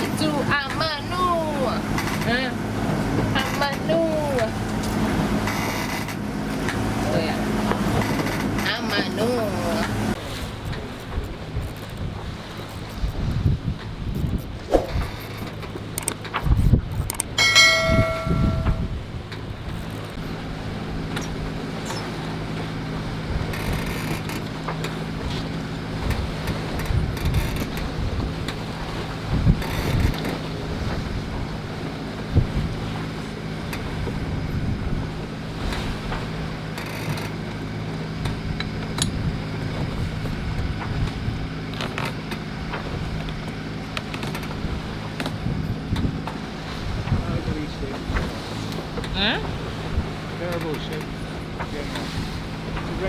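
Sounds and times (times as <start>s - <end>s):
boat engine droning: 0.0s - 53.0s
water noise: 0.0s - 53.0s
wind: 0.0s - 53.0s
metallic bell-like ring: 17.4s - 19.0s
light clicks and knocks: 39.8s - 44.6s.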